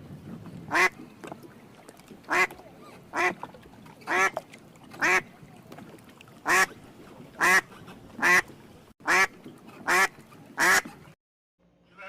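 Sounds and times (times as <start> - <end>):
duck quacking: 2.3 - 2.5, 3.1 - 3.4, 7.4 - 8.4, 9.0 - 10.9.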